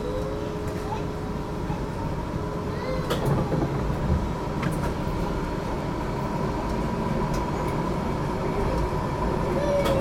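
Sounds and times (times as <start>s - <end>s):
tram wheels rumbling on rails: 0.6s - 10.0s.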